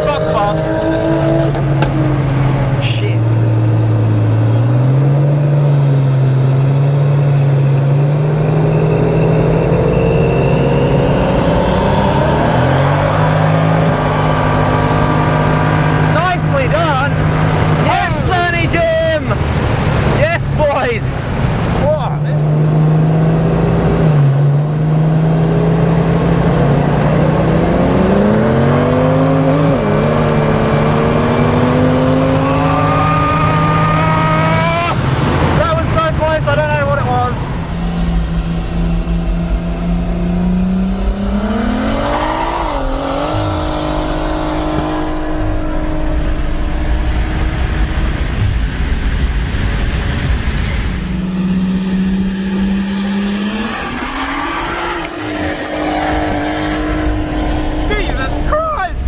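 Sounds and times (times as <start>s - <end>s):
car engine accelerating: 0.0s - 59.0s
steady low drone: 35.0s - 59.0s.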